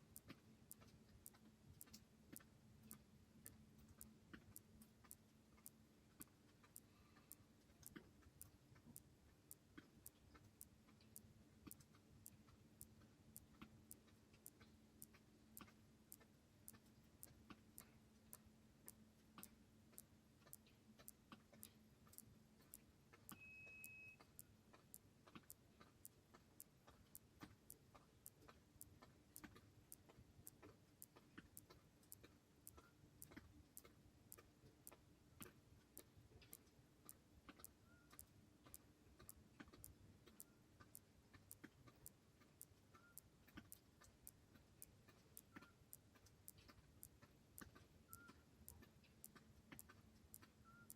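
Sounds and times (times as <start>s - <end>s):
faint even ticking: 0.0s - 50.9s
short high beep: 23.3s - 24.2s.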